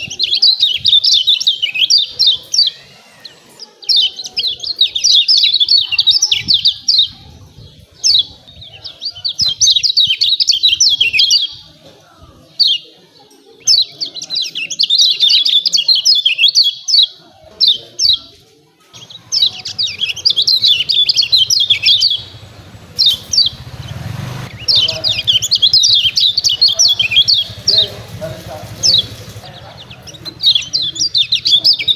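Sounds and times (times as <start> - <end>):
bird chattering call: 19.0 - 31.9.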